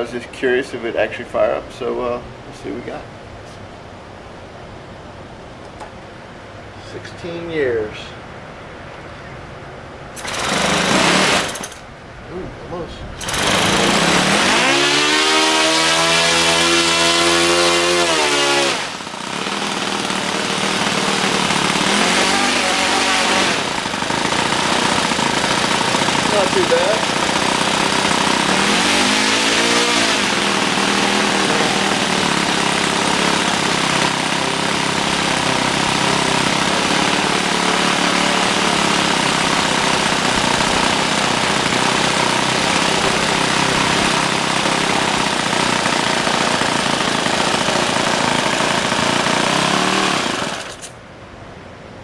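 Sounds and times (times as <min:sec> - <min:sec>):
model airplane engine running: 0:13.2 - 0:50.9.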